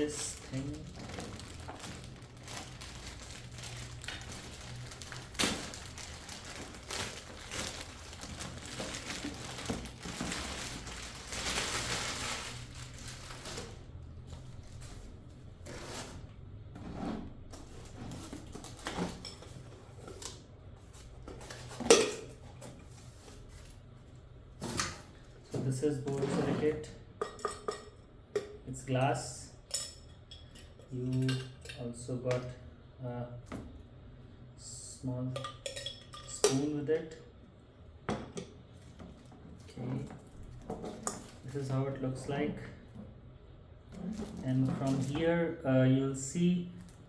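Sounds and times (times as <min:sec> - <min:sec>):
packaging rustling and crinkling: 0:00.0 - 0:16.3, 0:17.5 - 0:21.8, 0:44.0 - 0:45.2.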